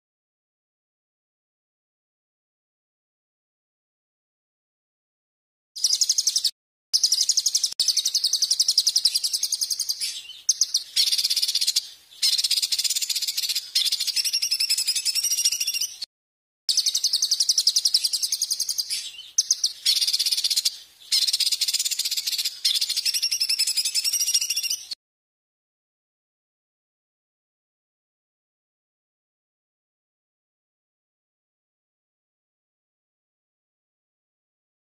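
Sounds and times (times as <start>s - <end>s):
songbird trilling song: 5.8s - 16.1s, 16.7s - 25.0s.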